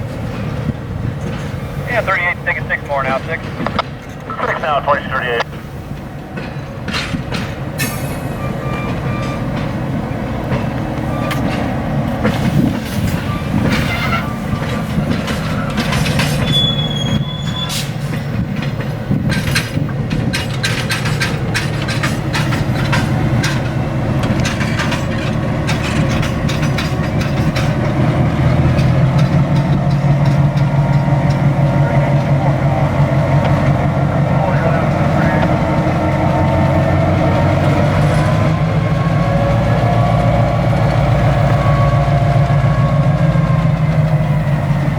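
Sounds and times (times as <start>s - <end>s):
wheels clanking over rail joints: 0.0s - 4.4s, 5.4s - 44.9s
diesel locomotive engine running: 0.0s - 44.9s
high wheel squeal: 7.8s - 9.8s, 11.0s - 11.8s, 12.5s - 18.2s.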